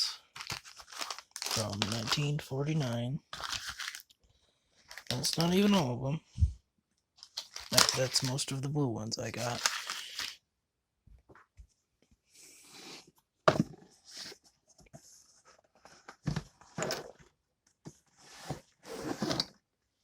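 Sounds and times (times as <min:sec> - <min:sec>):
records rustling and sliding: 0:00.0 - 0:04.0, 0:04.9 - 0:05.9, 0:07.2 - 0:08.6, 0:09.3 - 0:10.4.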